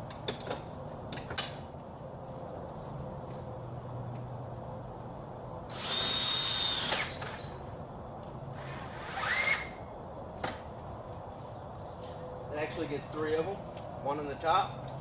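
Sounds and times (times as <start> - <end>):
power drill whining: 5.7 - 7.4, 8.6 - 9.8.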